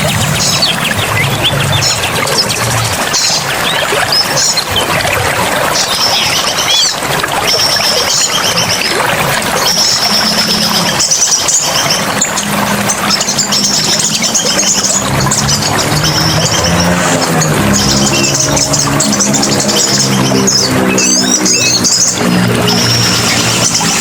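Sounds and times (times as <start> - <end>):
birds trilling: 0.0 - 24.0
rushing water: 0.0 - 24.0.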